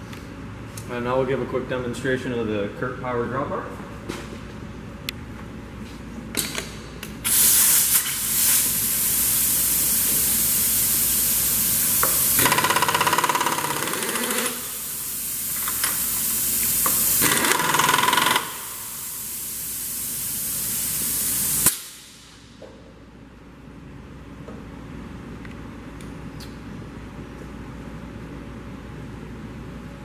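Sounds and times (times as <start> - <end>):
compressed air hissing: 7.2 - 12.4, 14.4 - 17.4, 18.6 - 22.3.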